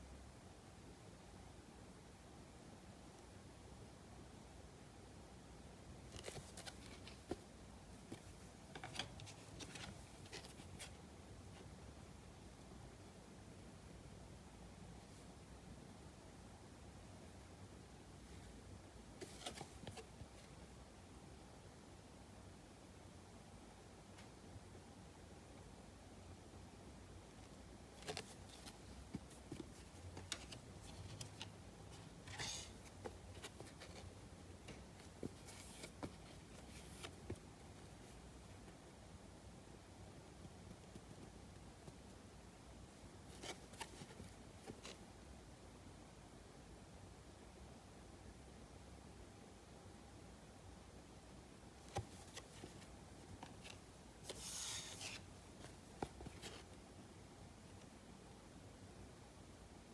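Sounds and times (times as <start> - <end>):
low room hum: 0.0 - 59.9
trading cards rustling: 28.0 - 38.0.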